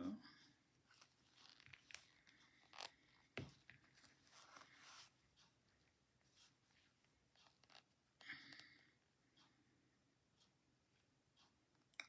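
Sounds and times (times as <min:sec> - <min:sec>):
knitting needles clicking: 0:06.4 - 0:08.8.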